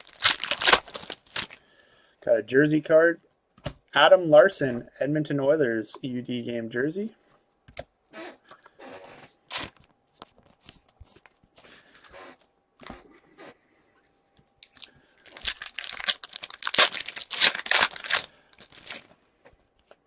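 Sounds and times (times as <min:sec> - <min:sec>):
foil wrapper tearing and crinkling: 0:00.0 - 0:01.6, 0:09.5 - 0:09.8, 0:14.6 - 0:19.1.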